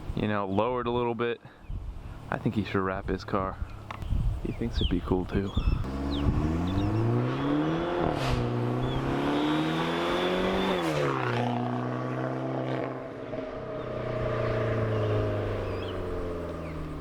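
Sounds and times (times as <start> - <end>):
car exhaust accelerating: 5.6 - 17.0.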